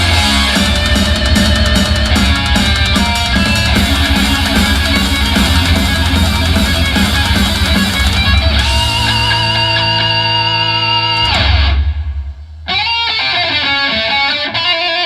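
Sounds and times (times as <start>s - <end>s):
guitar rock music with heavy bass: 0.0s - 15.0s.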